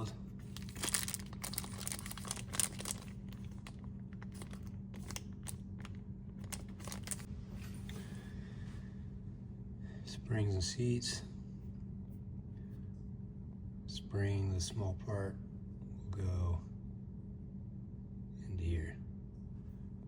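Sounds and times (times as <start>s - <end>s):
plastic packaging crinkling: 0.0s - 7.3s
steady low hum: 0.0s - 20.0s.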